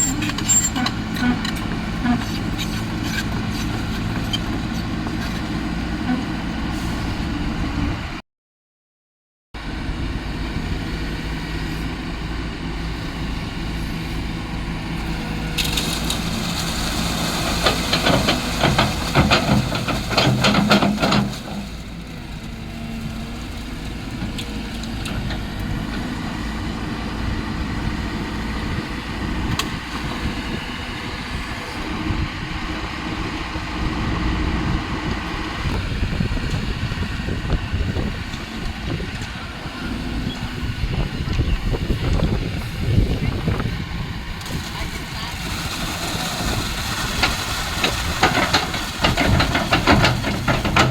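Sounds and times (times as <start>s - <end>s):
heavy machine engine running: 0.0s - 8.1s, 9.6s - 50.9s
rapid rattling and clanking: 47.1s - 50.9s.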